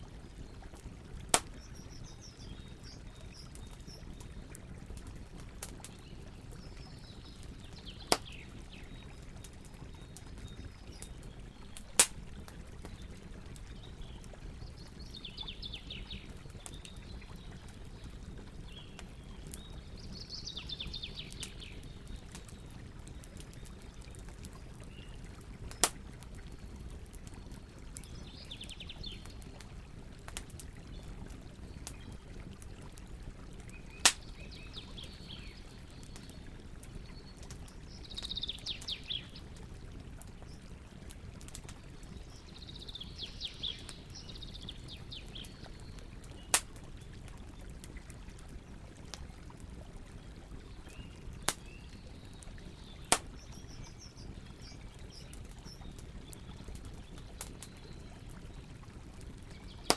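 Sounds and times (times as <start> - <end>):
campfire wood pops: 1.3 - 1.9, 8.0 - 8.4, 11.8 - 13.0, 25.7 - 26.2, 34.0 - 34.4, 46.4 - 46.9, 51.4 - 51.7, 53.1 - 53.6.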